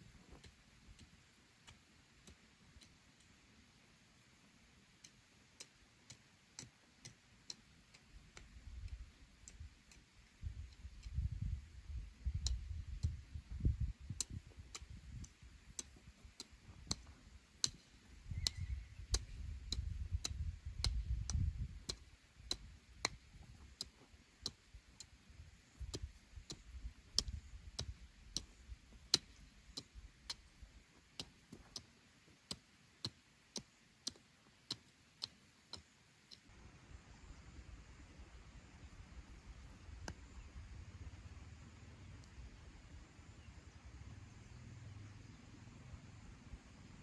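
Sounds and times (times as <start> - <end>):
steady ticking clicks: 0.2 - 3.4, 5.0 - 36.5.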